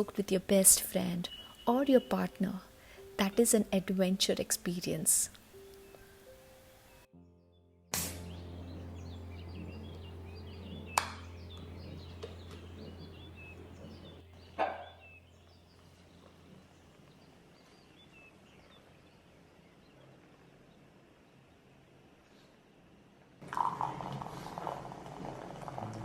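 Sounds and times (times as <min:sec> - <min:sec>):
small birds chirping: 0:00.0 - 0:03.7, 0:04.3 - 0:07.1, 0:08.1 - 0:21.9
low hum: 0:07.2 - 0:17.7.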